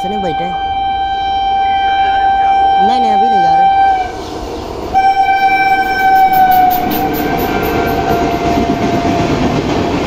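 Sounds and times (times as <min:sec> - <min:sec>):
locomotive horn blast: 0:00.0 - 0:09.5
train coaches rushing rumble: 0:02.0 - 0:10.0.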